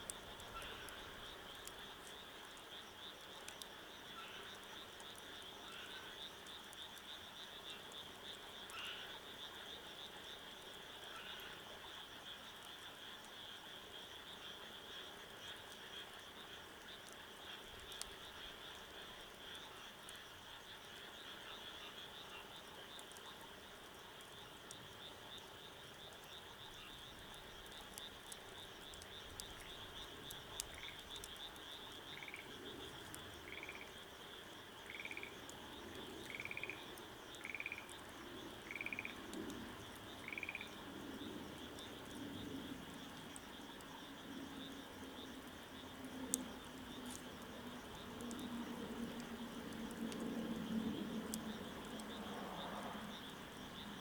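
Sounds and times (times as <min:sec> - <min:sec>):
faint clicks: 0:00.0 - 0:02.7, 0:03.4 - 0:03.7, 0:16.8 - 0:18.5, 0:22.9 - 0:34.0, 0:45.4 - 0:48.5
frogs chorus chirring: 0:00.0 - 0:54.0
short frog calls: 0:00.4 - 0:01.9, 0:08.7 - 0:09.2, 0:28.6 - 0:33.9, 0:34.8 - 0:39.3, 0:40.2 - 0:40.8.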